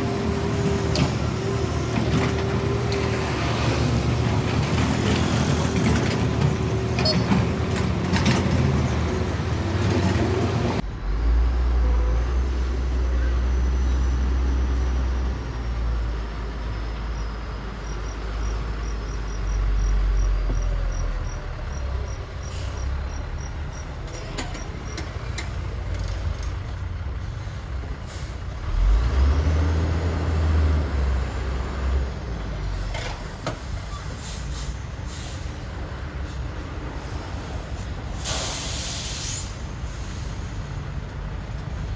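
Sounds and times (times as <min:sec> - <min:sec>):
diesel engines running under load: 0:00.0 - 0:41.9.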